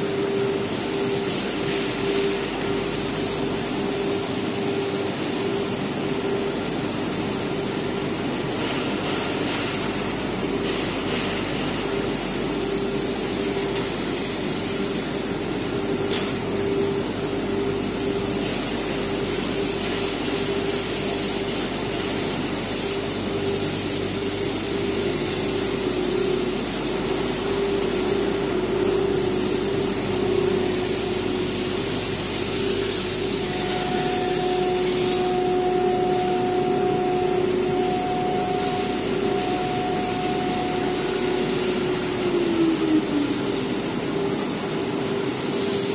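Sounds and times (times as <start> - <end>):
cnc router spindle whine: 0.0 - 9.2, 9.8 - 45.9
higher tone: 33.0 - 43.1.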